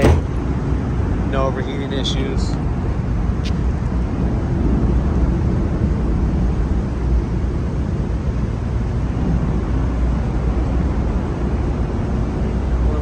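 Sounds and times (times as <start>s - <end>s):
car engine idling: 0.0s - 0.5s, 1.9s - 2.9s.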